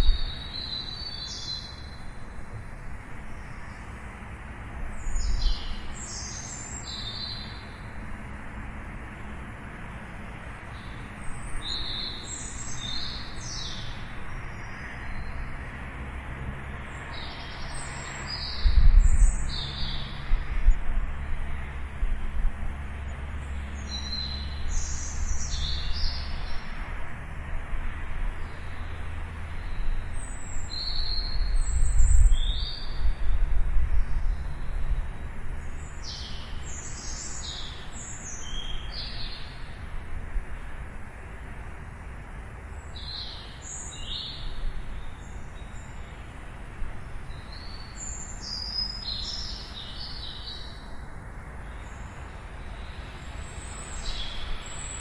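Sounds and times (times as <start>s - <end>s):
small birds chirping: 0.0s - 2.2s, 4.9s - 7.8s, 10.7s - 15.5s, 23.0s - 26.7s, 34.0s - 39.8s, 42.7s - 46.6s, 47.2s - 55.0s.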